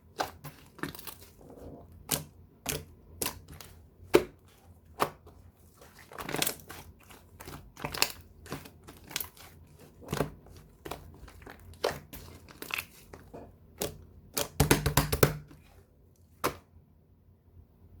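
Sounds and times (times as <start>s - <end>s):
slime popping and crackling: 5.9s - 13.1s.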